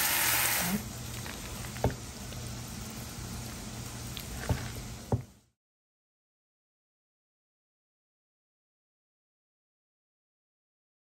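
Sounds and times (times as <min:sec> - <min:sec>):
chicken sizzling in a pan: 0:00.0 - 0:05.1.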